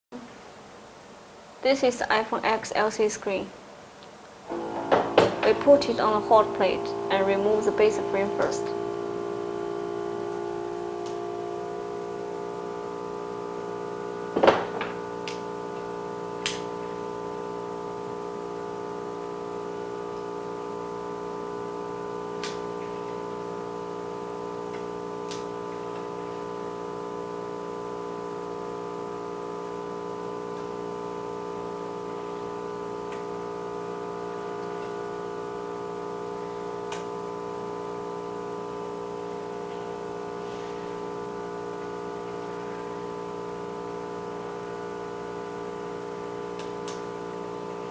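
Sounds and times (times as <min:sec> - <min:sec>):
machine electrical hum: 0:00.1 - 0:47.9.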